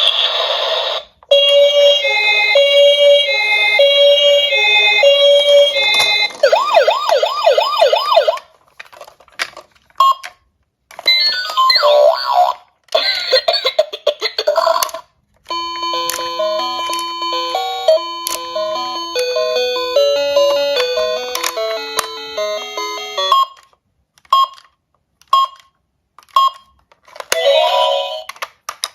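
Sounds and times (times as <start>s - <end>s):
electronic siren wail: 0.8s - 8.4s.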